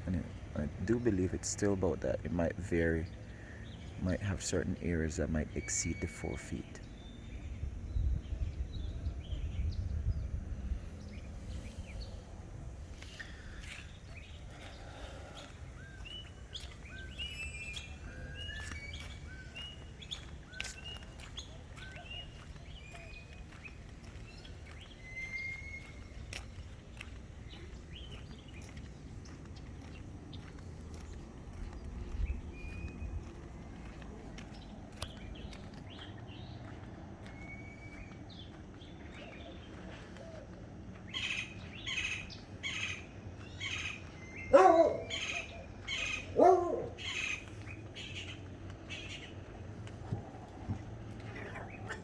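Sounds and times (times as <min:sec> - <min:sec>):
birds chirping: 0:00.0 - 0:52.0
steady low rumble: 0:06.8 - 0:17.2.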